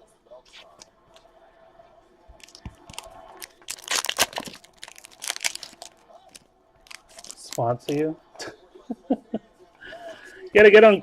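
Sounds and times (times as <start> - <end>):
card pack wrapper tearing: 2.4 - 8.0.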